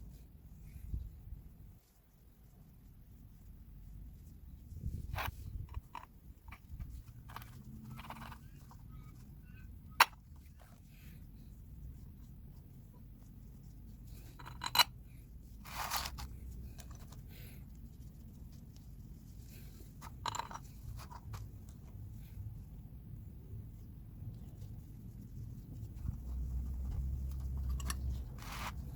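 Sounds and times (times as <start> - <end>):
tools clicking and scraping: 5.1 - 8.8, 14.2 - 15.0, 20.0 - 21.4, 27.3 - 28.9.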